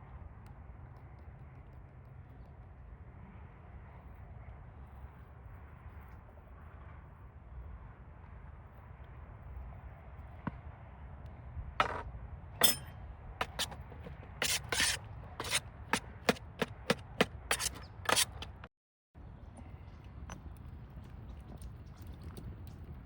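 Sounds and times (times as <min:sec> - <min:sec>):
knife chopping on cutting board: 0:13.4 - 0:18.6.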